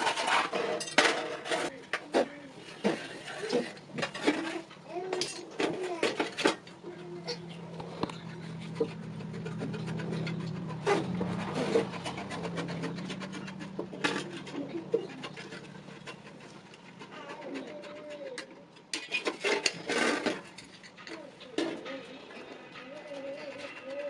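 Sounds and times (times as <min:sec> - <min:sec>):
metal taps and scraping: 0:00.0 - 0:24.0
low machine hum: 0:06.6 - 0:17.0.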